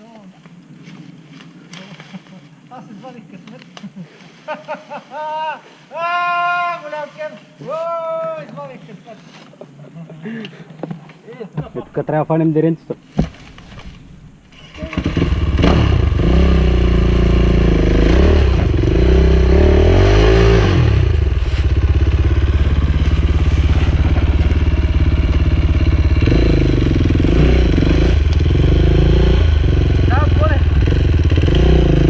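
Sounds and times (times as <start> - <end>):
dirt bike engine revving: 14.5 - 32.0.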